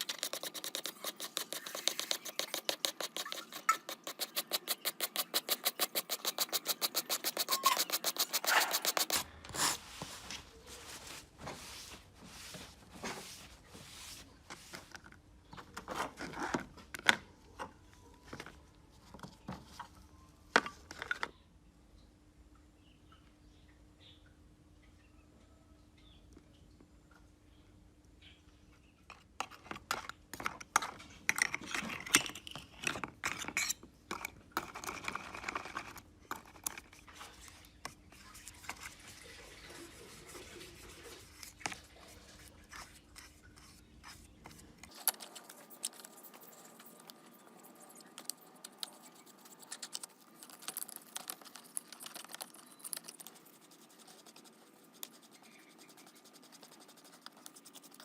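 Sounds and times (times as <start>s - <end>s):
light scratching and ticks: 0.0s - 9.2s, 33.2s - 58.0s.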